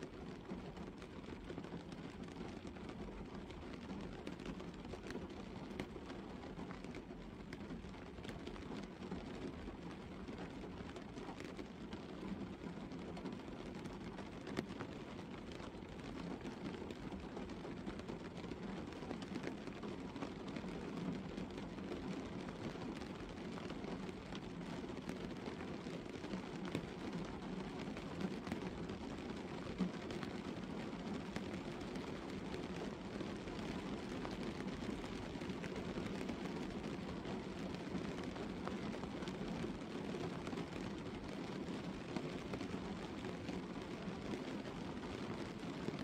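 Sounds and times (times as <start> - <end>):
light rain on a car roof: 0.0 - 46.0.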